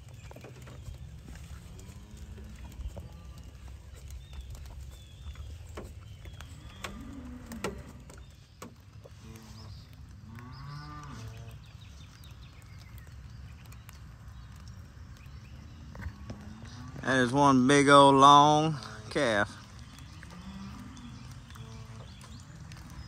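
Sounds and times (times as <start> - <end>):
cow mooing: 6.6 - 8.2, 10.2 - 11.5, 20.2 - 22.2.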